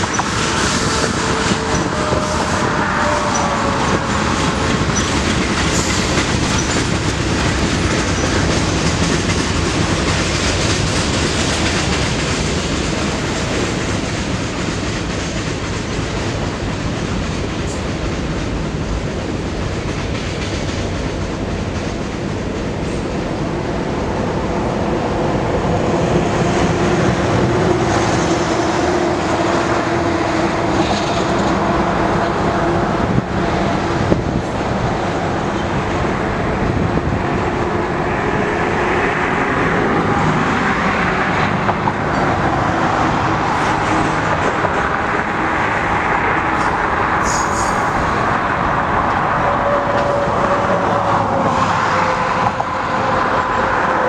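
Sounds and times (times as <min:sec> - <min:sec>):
wheels clicking over rail joints: 0:00.0 - 0:23.4
thin wheel squeal: 0:47.2 - 0:47.8.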